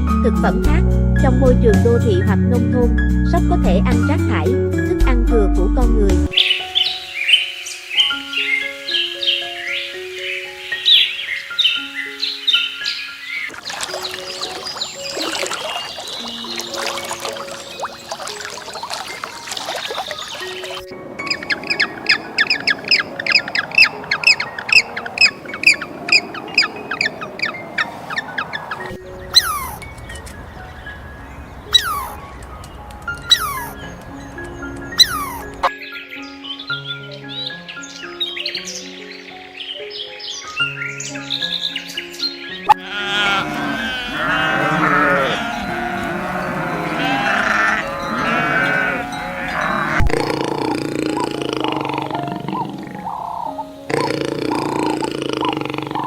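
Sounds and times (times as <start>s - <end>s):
animal chirping rapidly: 13.4s - 29.8s, 31.7s - 32.2s, 33.2s - 33.9s, 34.9s - 35.7s, 42.7s - 56.0s
sheep bleating: 42.7s - 50.2s.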